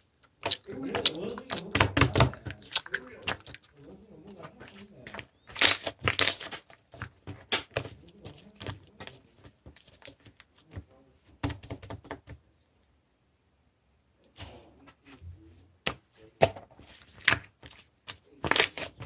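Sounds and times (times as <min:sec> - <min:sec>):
slime squished by hand: 0:00.3 - 0:10.8, 0:16.9 - 0:19.0.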